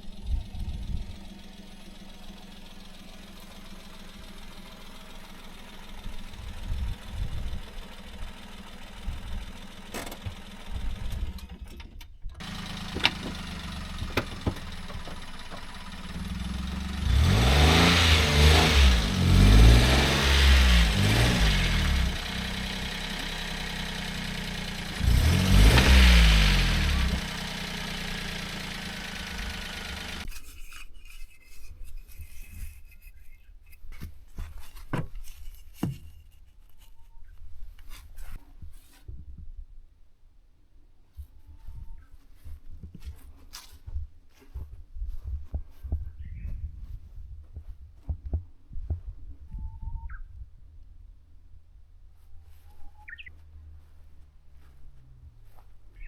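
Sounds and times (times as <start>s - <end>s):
small truck engine running and revving: 0.0s - 11.8s, 12.4s - 30.3s.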